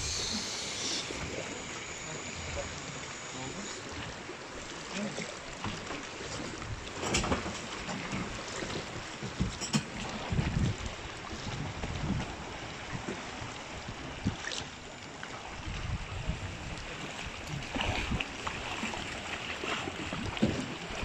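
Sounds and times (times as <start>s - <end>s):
sea water sloshing and splashing: 0.0s - 21.0s
wind buffeting microphone: 9.4s - 13.0s, 15.5s - 18.2s.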